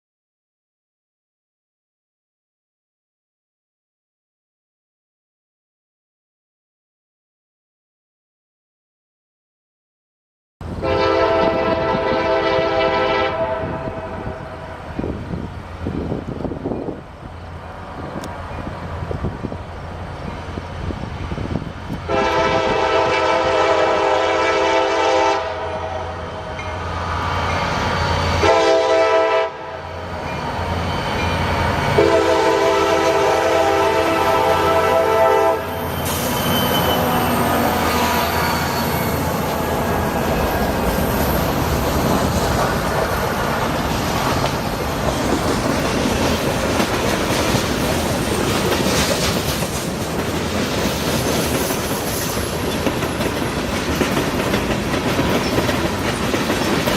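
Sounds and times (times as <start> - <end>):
train wheels rumbling on rails: 10.6 - 29.0, 29.9 - 56.9
locomotive horn blasts: 10.7 - 14.8, 22.1 - 26.4, 28.4 - 30.0, 31.9 - 39.0.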